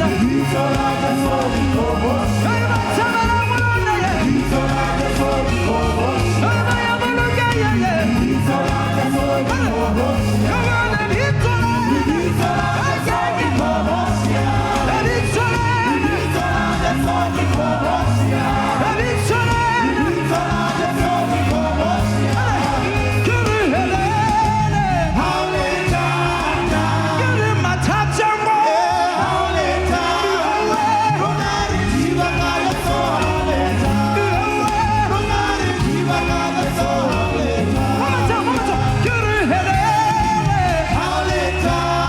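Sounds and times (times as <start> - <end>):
gospel band accompaniment: 0.0 - 42.0
person singing: 0.0 - 42.0
repeating bass line: 0.0 - 42.0.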